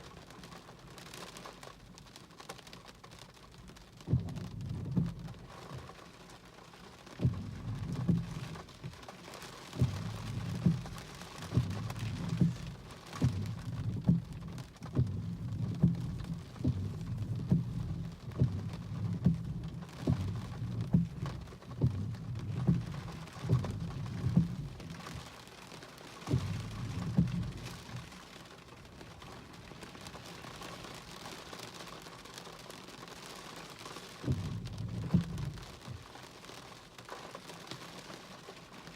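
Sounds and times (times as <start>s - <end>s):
steady hiss: 7.2s - 32.6s.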